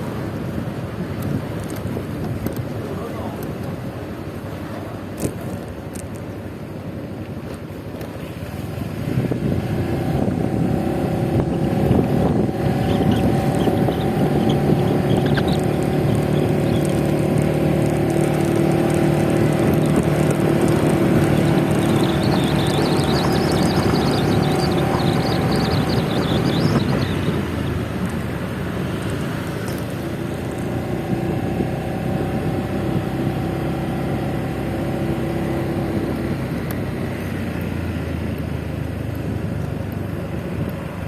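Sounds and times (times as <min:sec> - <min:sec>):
wind and road noise: 0:00.0 - 0:41.0
scooter engine running: 0:09.2 - 0:41.0.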